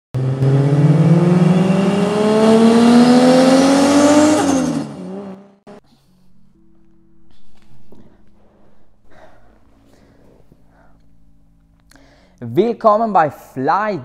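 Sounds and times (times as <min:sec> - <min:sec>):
car engine accelerating hard: 0:00.1 - 0:05.8.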